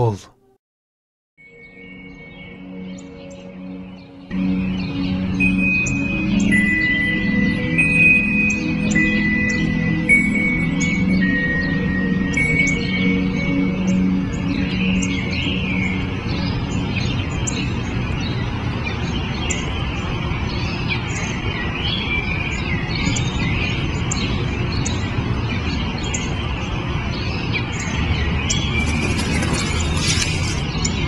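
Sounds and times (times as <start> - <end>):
small birds chirping: 10.8 - 31.0.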